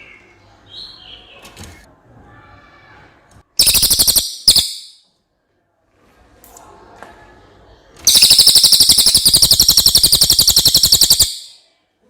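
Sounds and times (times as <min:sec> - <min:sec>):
bird calling sharp high notes: 0:03.6 - 0:05.0, 0:08.1 - 0:11.6.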